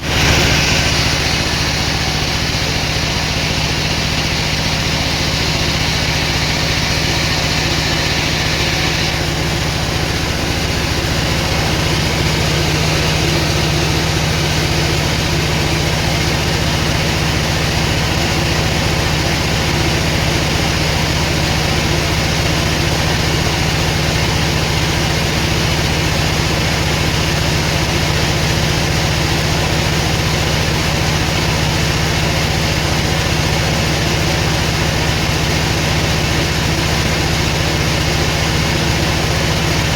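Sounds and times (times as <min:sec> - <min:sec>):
mechanical hiss: 0:00.0 - 0:09.6
sawmill machinery hum: 0:00.0 - 0:39.9.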